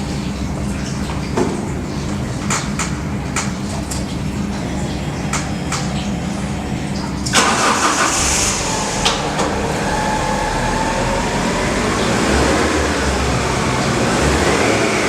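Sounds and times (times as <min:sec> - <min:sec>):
faint engine whine: 0:04.4 - 0:15.0
car engine rumble: 0:07.3 - 0:15.0
engine burst: 0:07.3 - 0:15.0.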